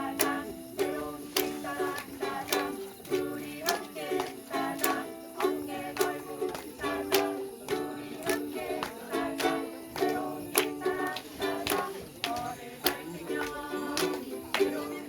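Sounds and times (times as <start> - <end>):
strummed stringed instrument: 0.0 - 15.0.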